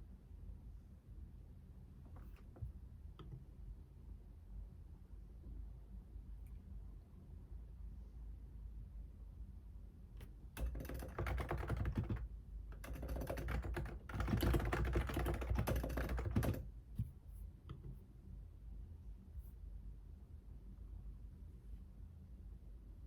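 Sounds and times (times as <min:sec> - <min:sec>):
fast typing on a keyboard: 0:10.6 - 0:16.7.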